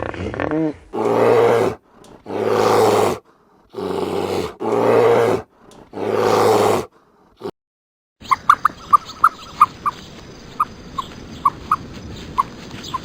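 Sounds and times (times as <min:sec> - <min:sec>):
animal grunt: 0:00.0 - 0:07.5
large animal roaring: 0:01.0 - 0:03.2, 0:03.8 - 0:07.5.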